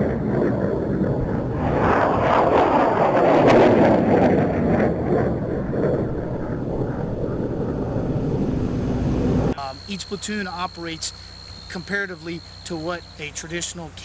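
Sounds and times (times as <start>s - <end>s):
rocket roaring: 0.0s - 9.6s.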